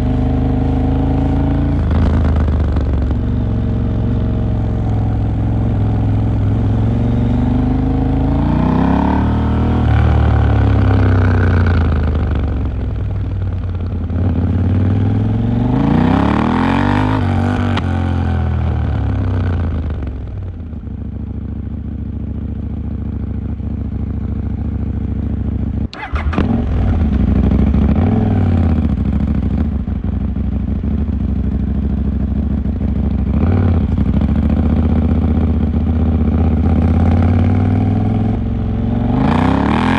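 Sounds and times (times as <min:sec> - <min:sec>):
motorcycle engine idling: 0:00.0 - 0:08.2, 0:10.5 - 0:15.4, 0:18.9 - 0:37.1
motorcycle engine revving: 0:00.0 - 0:39.9.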